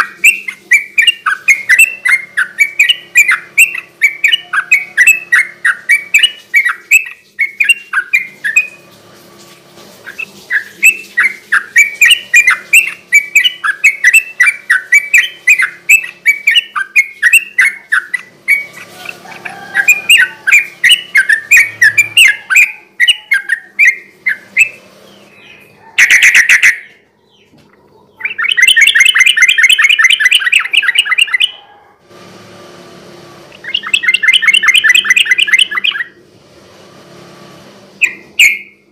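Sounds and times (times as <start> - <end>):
bulbul singing chattering phrases: 0.0 - 8.8
fast rattling bird trill: 0.0 - 8.8, 10.0 - 26.9, 28.2 - 31.6, 33.6 - 36.2
loud harsh bird note: 10.0 - 26.9, 33.6 - 36.2, 38.0 - 38.9.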